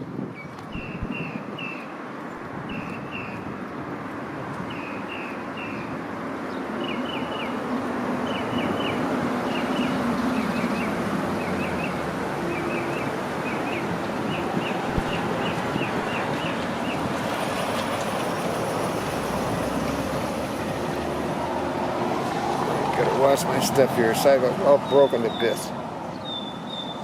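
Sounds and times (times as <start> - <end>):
street noise: 0.0 - 27.0
bird chirping: 0.4 - 1.9, 24.8 - 27.0.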